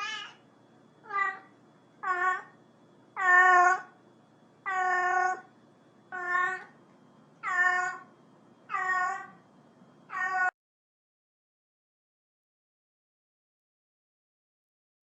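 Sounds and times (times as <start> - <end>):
cat meowing: 0.0 - 0.4, 1.0 - 2.6, 3.2 - 3.9, 4.6 - 5.5, 6.1 - 6.7, 7.4 - 8.1, 8.7 - 9.4, 10.1 - 10.5.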